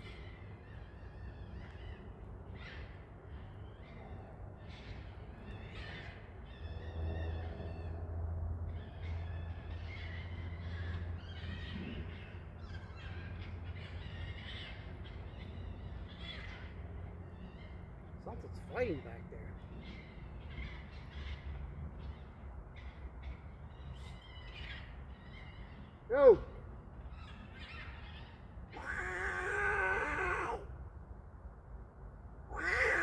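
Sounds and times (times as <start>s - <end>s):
animals crying harshly: 27.2s - 30.8s, 32.5s - 33.0s.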